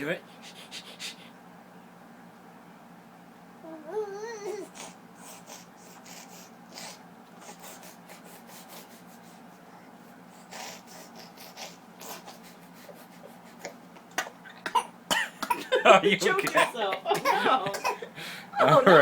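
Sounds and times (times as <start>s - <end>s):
child breathy huffs and snuffles: 4.6s - 9.5s.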